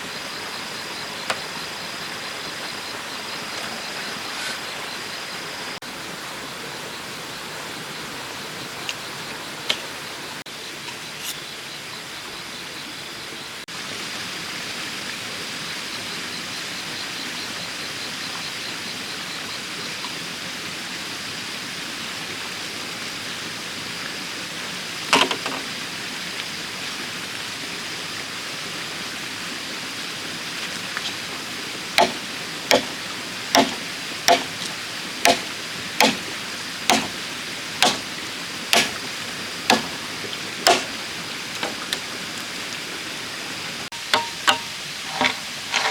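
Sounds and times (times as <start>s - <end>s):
sharp knock: 32.0s - 32.9s, 33.6s - 34.5s, 35.3s - 36.2s, 36.9s - 37.1s, 37.8s - 38.1s, 38.8s - 39.0s, 39.7s - 40.0s, 40.7s - 40.9s, 44.1s - 44.7s
tool striking bamboo: 32.0s - 33.0s, 33.6s - 36.3s, 36.9s - 37.2s, 37.8s - 38.1s, 38.7s - 39.1s, 39.7s - 40.0s, 40.6s - 41.0s, 41.6s - 42.0s, 44.0s - 45.4s
faint high steady tone: 43.9s - 45.4s.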